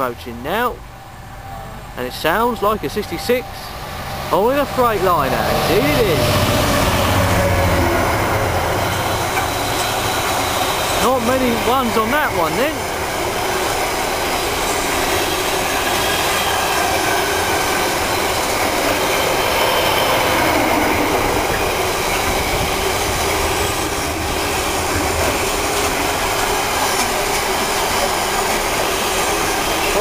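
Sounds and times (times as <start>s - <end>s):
freight train wheels on rail: 0.0s - 30.0s.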